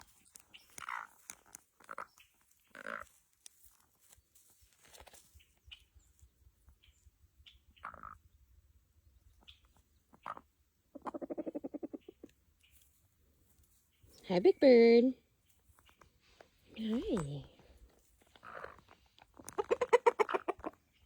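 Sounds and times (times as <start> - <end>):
chickens calling: 9.4 - 12.3, 15.8 - 21.0.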